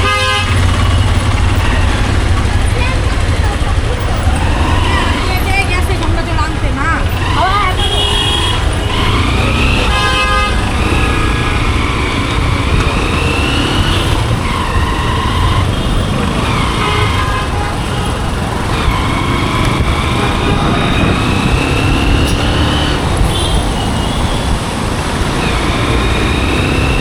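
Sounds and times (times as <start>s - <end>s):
vehicle horn honking: 0.0s - 2.5s, 7.2s - 24.6s
motorcycle engine: 0.0s - 27.0s
wind and road noise: 0.0s - 27.0s.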